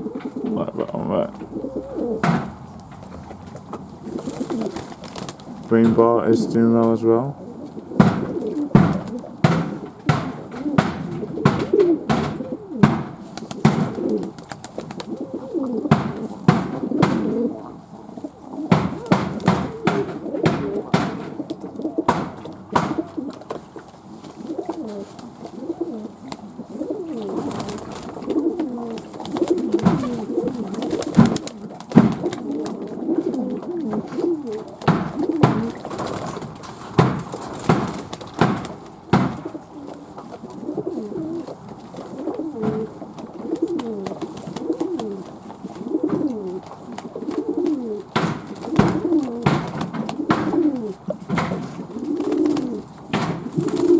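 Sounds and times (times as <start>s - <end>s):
doves cooing: 0.0s - 53.9s
sharp knocks and clicks: 0.1s - 3.8s, 7.9s - 15.1s, 15.9s - 17.6s, 18.7s - 23.6s, 29.7s - 32.5s, 34.1s - 40.3s, 42.6s - 43.9s, 46.0s - 46.6s, 47.5s - 53.9s.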